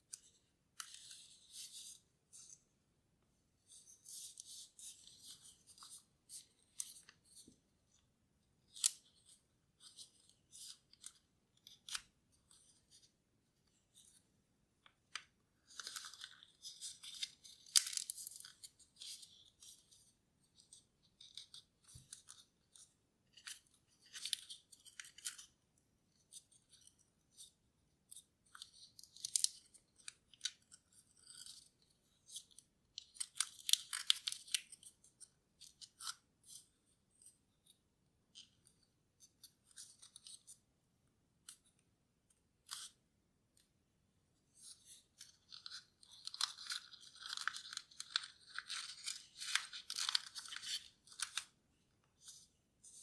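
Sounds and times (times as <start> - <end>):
paper crinkling and snapping: 15.2 - 19.8, 28.5 - 31.6, 32.3 - 34.9, 44.6 - 51.6.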